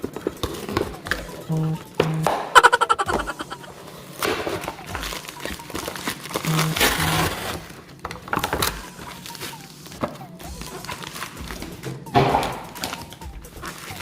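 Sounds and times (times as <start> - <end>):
plastic packaging rustling: 4.8 - 11.8.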